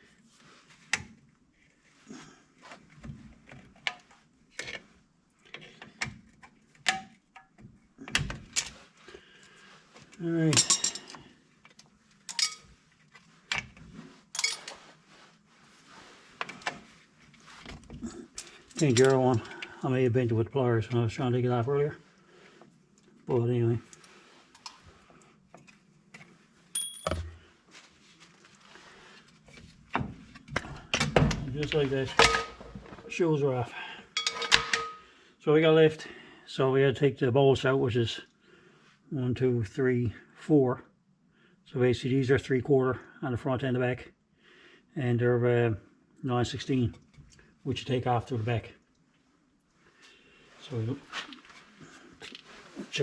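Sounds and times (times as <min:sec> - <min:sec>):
light metallic clinks: 0:26.8 - 0:27.3, 0:34.2 - 0:35.1
ringing metal clank: 0:34.2 - 0:35.1.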